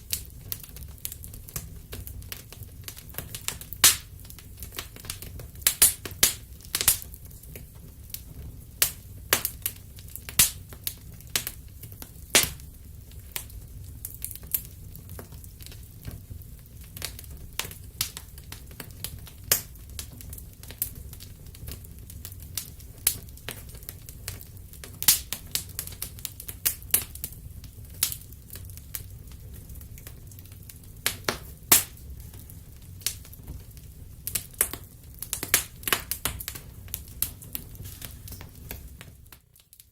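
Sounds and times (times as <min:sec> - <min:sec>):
low fire rumble: 0:00.0 - 0:39.9
wood fire crackling: 0:00.0 - 0:39.9.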